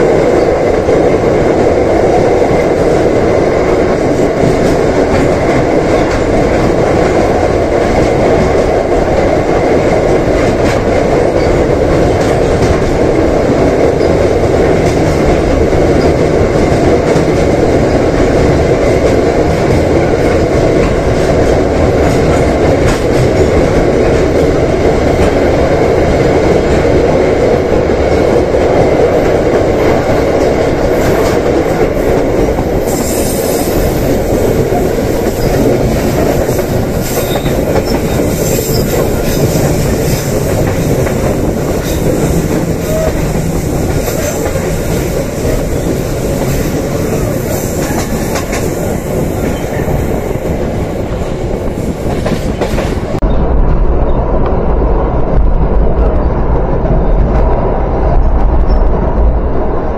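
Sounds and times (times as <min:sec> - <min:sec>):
wheels rumbling on rails: 0:00.0 - 0:59.9.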